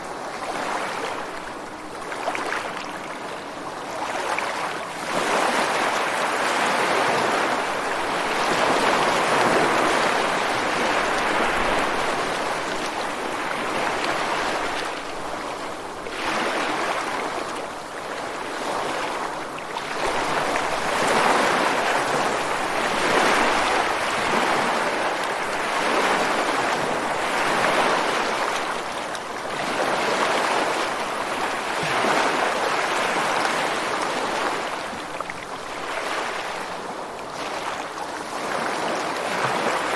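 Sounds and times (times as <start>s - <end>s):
waves breaking on beach and rocks: 0.0s - 39.9s.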